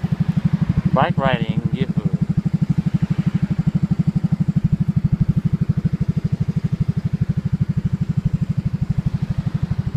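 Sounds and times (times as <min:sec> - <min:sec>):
motorcycle engine idling: 0:00.0 - 0:09.9.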